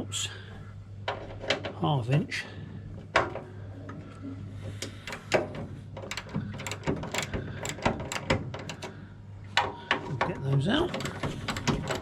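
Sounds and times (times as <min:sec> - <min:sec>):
socket ratchet clicking: 0:06.0 - 0:08.9.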